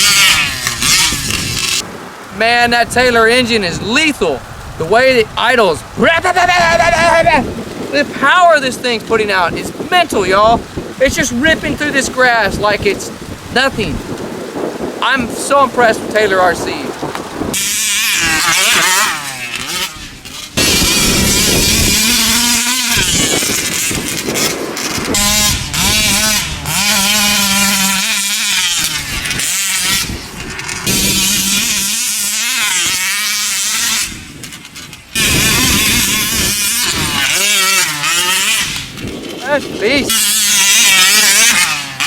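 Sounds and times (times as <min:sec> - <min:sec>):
two-stroke engine revving: 0:00.0 - 0:01.9, 0:17.5 - 0:42.0.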